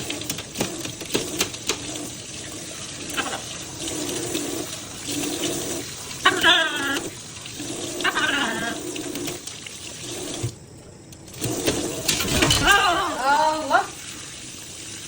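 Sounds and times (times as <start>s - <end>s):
water running from a tap: 0.0s - 15.0s.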